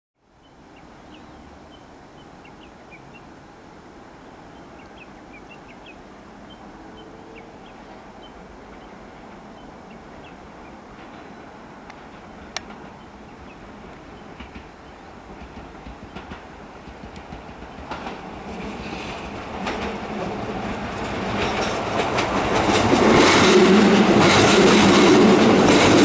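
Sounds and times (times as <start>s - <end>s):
small birds chirping: 0.4s - 3.4s, 4.2s - 11.5s, 12.3s - 15.1s
electric train rumble: 0.7s - 26.0s.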